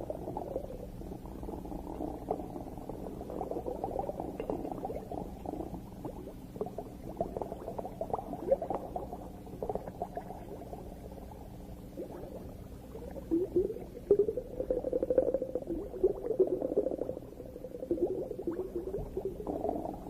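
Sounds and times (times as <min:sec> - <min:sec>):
underwater bubbling and gurgling: 0:00.0 - 0:20.0.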